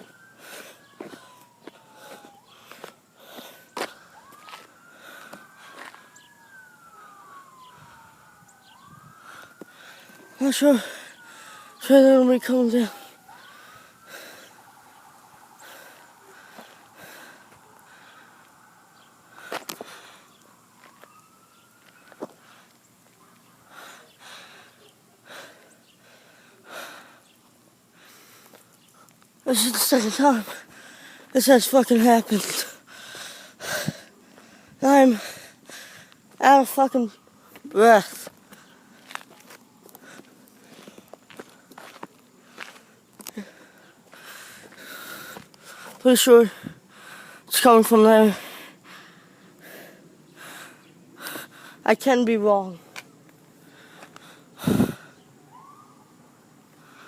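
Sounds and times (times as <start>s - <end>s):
distant emergency sirens wailing: 0.0s - 52.0s, 52.6s - 57.0s
heavy breathing: 0.3s - 4.3s, 4.9s - 6.2s, 9.2s - 11.8s, 12.9s - 14.9s, 15.5s - 20.6s, 23.6s - 29.1s, 30.4s - 31.4s, 32.5s - 36.3s, 39.9s - 47.5s, 48.3s - 51.9s, 53.6s - 55.3s.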